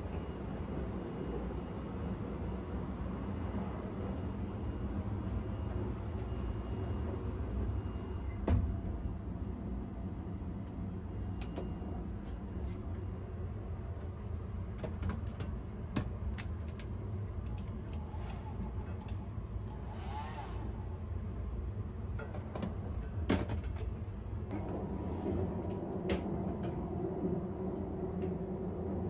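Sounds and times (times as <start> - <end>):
train running rumble: 0.0 - 29.0.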